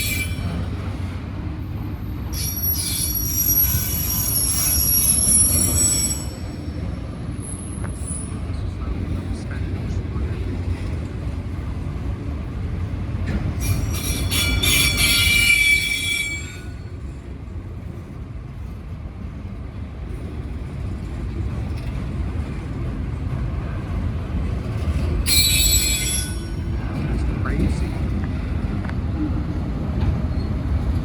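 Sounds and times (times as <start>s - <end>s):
train wheels squealing: 0.0s - 1.1s, 1.9s - 8.7s, 13.3s - 17.3s, 24.6s - 27.8s, 30.0s - 31.0s
freight train rumbling past: 0.0s - 31.0s.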